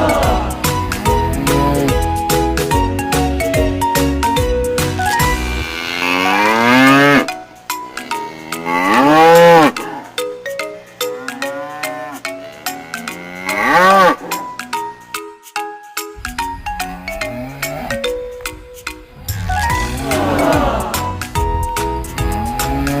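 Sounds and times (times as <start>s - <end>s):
cow mooing: 1.0s - 2.1s, 5.4s - 10.2s, 11.0s - 14.4s, 16.8s - 18.2s, 19.2s - 21.0s.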